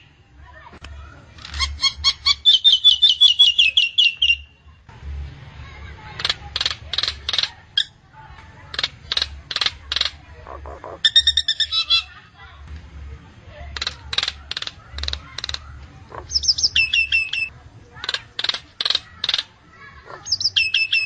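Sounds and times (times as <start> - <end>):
harsh rasping bird calls: 1.4 - 4.5, 6.0 - 8.0, 8.6 - 12.3, 13.7 - 21.0
bird whistling notes: 16.3 - 17.5.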